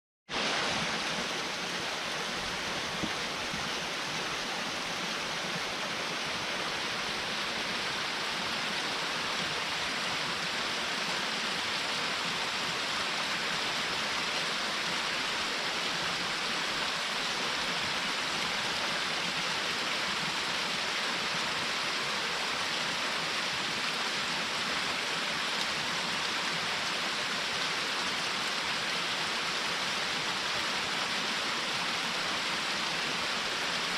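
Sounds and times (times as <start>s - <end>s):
small waterfall splashing: 0.3s - 33.9s.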